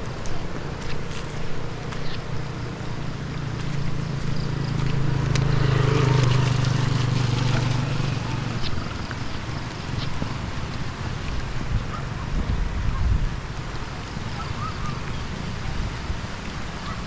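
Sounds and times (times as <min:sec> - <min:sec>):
engine humming: 0:00.0 - 0:11.6.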